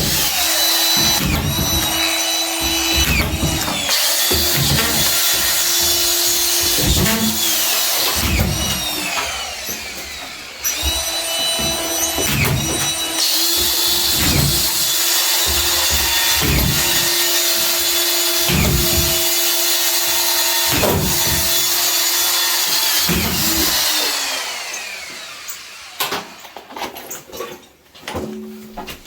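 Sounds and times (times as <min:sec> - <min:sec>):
knocks and clicks: 0:00.0 - 0:09.4, 0:10.1 - 0:19.5
power tool whining: 0:00.0 - 0:26.6.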